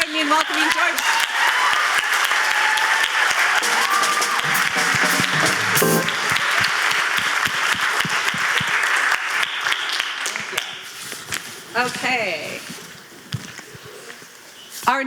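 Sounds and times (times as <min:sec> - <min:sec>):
audience applauding: 0:00.0 - 0:10.8
whistling: 0:03.4 - 0:05.2
loud pitched cry: 0:03.6 - 0:06.4.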